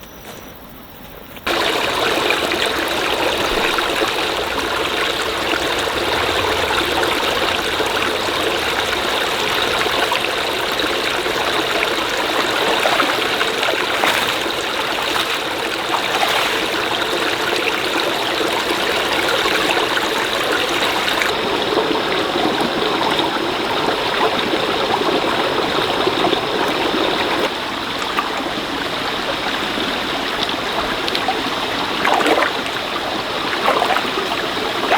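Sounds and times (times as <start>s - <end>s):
stream water flowing: 1.4s - 34.9s.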